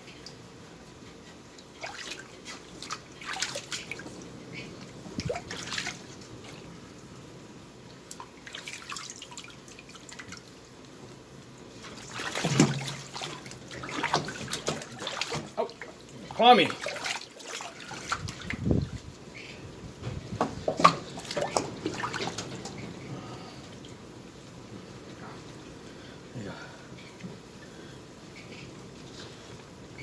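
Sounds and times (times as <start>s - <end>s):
water splashing and dripping: 1.6s - 19.3s, 20.4s - 23.0s.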